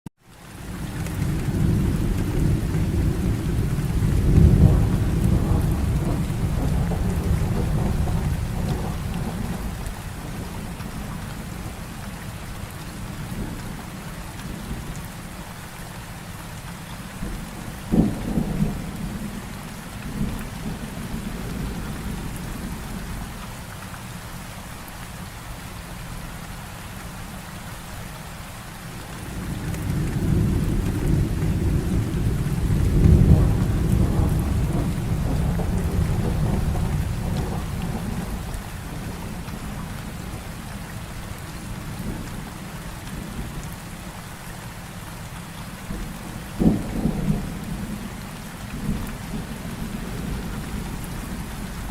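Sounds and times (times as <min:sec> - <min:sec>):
heavy rain falling: 0:00.2 - 0:51.9
low rolling thunder rumble: 0:00.6 - 0:12.0, 0:17.2 - 0:23.3, 0:28.9 - 0:43.7, 0:45.9 - 0:51.9.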